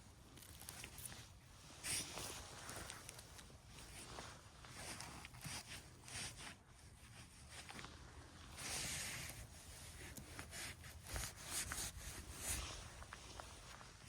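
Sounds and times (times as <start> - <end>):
rustling moss and twigs: 0.0 - 14.0.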